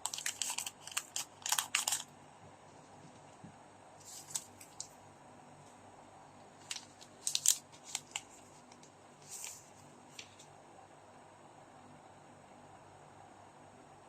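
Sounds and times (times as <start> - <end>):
packaging rustle: 0.0 - 2.1, 6.6 - 10.4
wrappers and cards crackling: 0.0 - 2.1, 4.0 - 5.0, 6.6 - 10.5.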